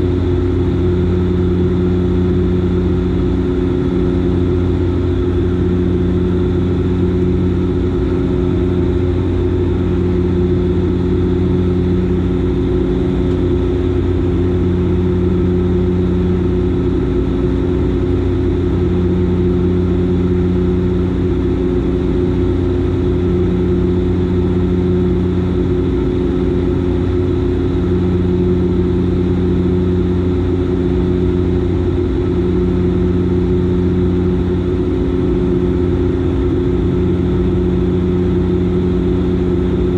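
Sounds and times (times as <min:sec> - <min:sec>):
turboprop engines droning: 0:00.0 - 0:39.9.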